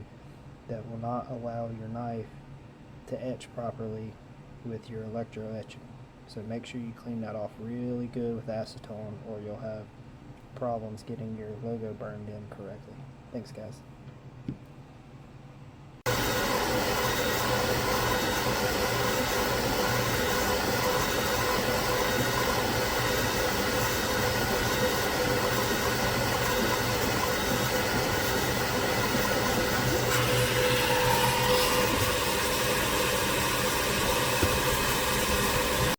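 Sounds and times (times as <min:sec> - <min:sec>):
loud whirring machine: 0:16.1 - 0:35.9.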